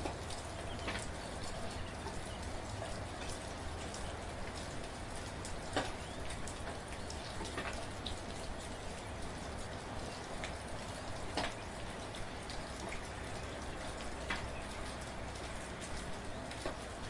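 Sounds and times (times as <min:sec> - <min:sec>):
raindrops ticking on a surface: 0:00.0 - 0:17.0
soft rain hiss: 0:00.0 - 0:17.0.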